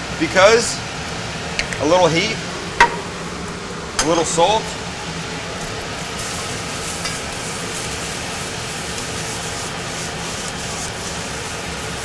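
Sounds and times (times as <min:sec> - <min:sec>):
beans sizzling in oil: 0:04.8 - 0:12.0.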